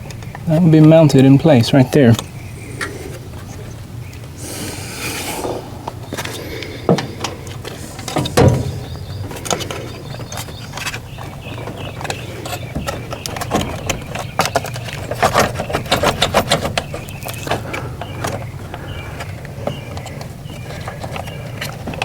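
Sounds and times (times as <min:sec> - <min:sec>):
hard parts clicking and knocking: 0:05.4 - 0:22.0.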